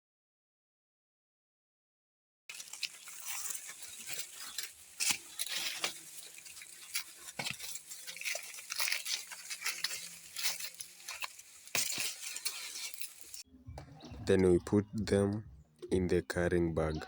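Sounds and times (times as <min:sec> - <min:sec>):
stalks snapping: 0:02.5 - 0:13.4
dry maize husks rustling: 0:02.5 - 0:13.5.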